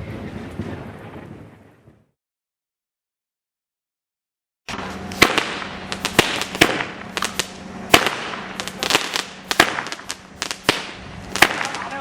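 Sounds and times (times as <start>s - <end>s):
firework crackling hiss: 4.7s - 12.0s
firework cracks: 4.7s - 12.0s.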